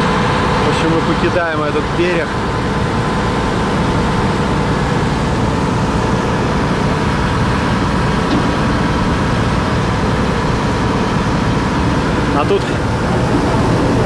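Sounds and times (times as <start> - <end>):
motor boat engine drone: 0.0 - 14.0.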